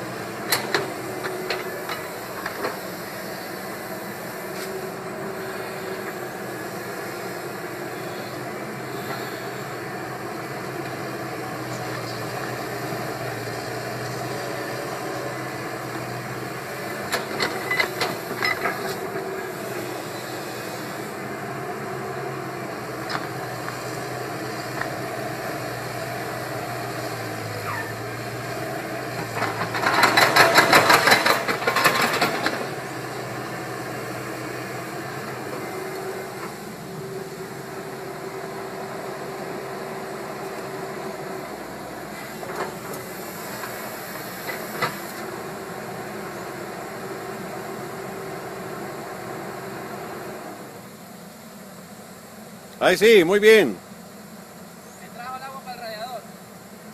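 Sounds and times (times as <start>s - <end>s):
excavator running: 0.0s - 56.9s.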